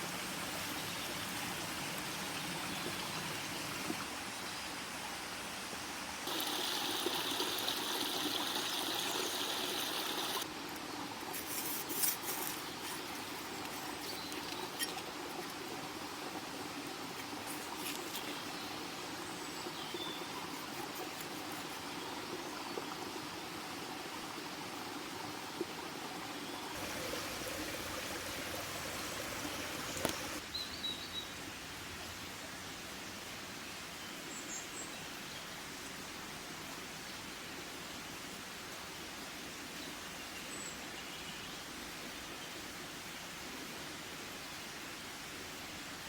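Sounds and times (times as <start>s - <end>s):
outdoor background noise: 0.0s - 46.0s.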